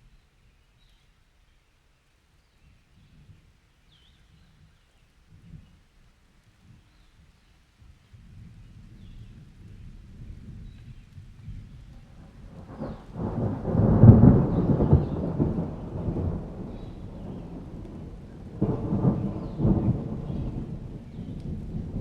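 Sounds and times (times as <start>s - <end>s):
steady rain: 0.0s - 22.0s
thunder rolling: 11.7s - 22.0s.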